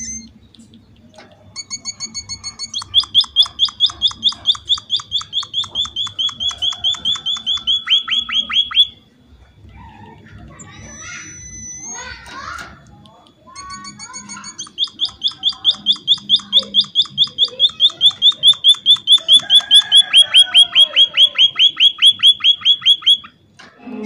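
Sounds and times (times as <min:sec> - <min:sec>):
finch trilling: 0:01.6 - 0:08.9, 0:10.7 - 0:12.3, 0:13.6 - 0:23.4.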